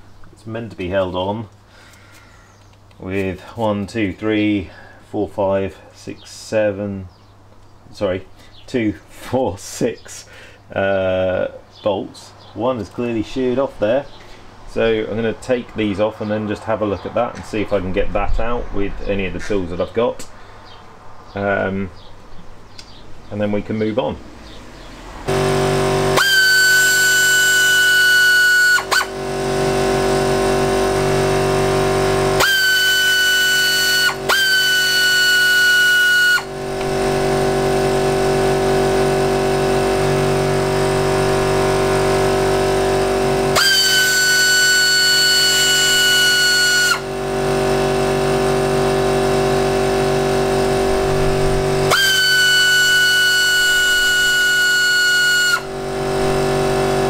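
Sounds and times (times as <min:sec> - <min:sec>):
musical drone: 0:24.8 - 0:57.0
power tool motor whining: 0:25.1 - 0:57.0.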